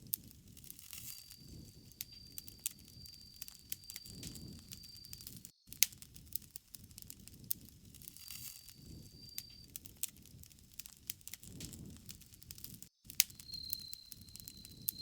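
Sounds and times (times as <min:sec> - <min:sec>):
campfire crackling: 0:00.0 - 0:15.0
thin high tone: 0:01.0 - 0:05.6, 0:08.1 - 0:09.7, 0:13.3 - 0:15.0.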